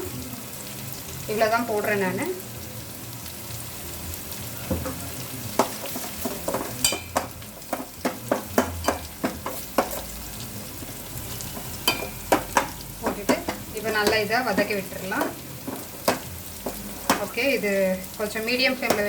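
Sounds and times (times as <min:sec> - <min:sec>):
oil sizzling: 0:00.0 - 0:19.0
ladle stirring and scraping: 0:04.8 - 0:17.3.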